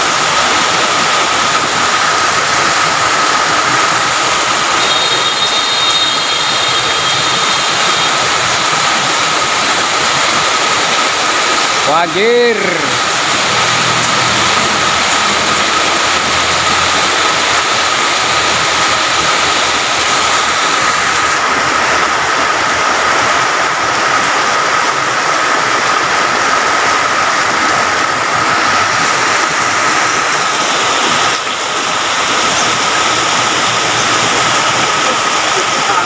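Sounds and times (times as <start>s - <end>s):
heavy rain: 0.0s - 36.0s
rushing floodwater: 0.0s - 36.0s
thin high tone: 4.7s - 8.2s.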